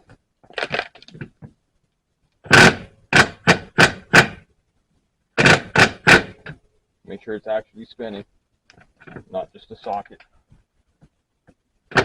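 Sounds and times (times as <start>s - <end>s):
impact wrench hammering: 5.4s - 6.4s.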